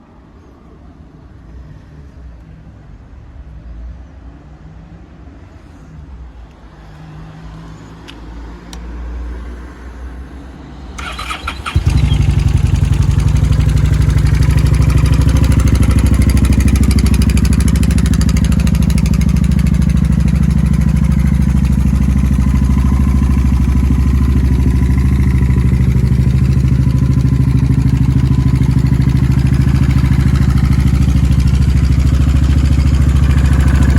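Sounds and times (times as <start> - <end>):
starter cranking: 11.0 - 12.7
motorcycle engine running: 11.0 - 33.9
faint low rumble: 12.3 - 33.9.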